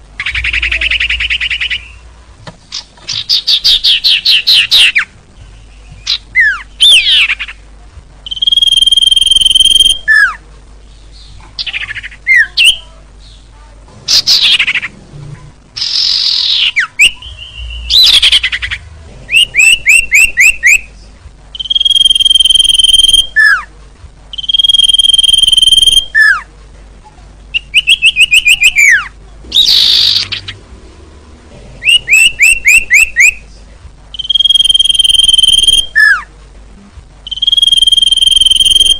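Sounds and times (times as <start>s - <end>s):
descending bird chirps: 0.2s - 2.1s, 8.2s - 10.4s, 14.0s - 15.0s, 15.8s - 20.9s, 21.6s - 23.7s, 24.3s - 26.4s, 27.5s - 30.7s, 31.8s - 33.4s, 34.1s - 36.3s, 37.2s - 38.9s
whistled bird notes: 8.3s - 10.4s, 15.8s - 20.9s, 21.6s - 23.7s, 24.3s - 26.5s, 27.5s - 30.6s, 31.8s - 33.4s, 34.1s - 36.3s, 37.2s - 38.9s.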